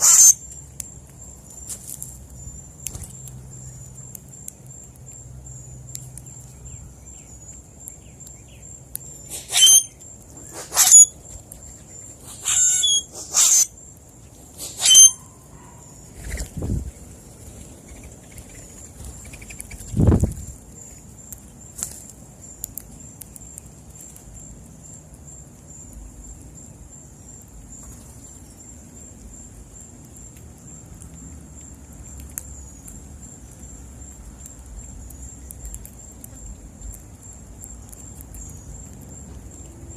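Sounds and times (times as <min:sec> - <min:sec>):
birds harsh calls: 0:00.0 - 0:00.4, 0:09.2 - 0:11.1, 0:12.2 - 0:13.7, 0:14.6 - 0:16.4.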